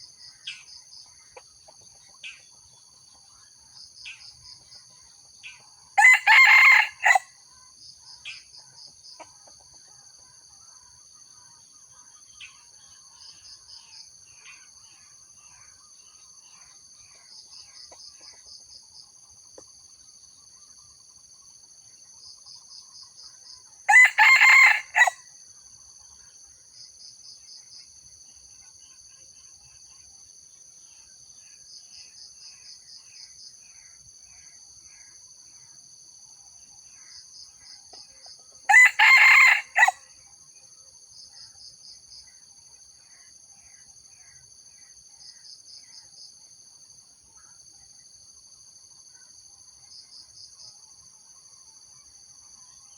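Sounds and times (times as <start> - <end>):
insects buzzing and trilling: 0.0 - 52.9
rooster crowing: 6.0 - 7.3, 23.9 - 25.2, 38.7 - 40.0.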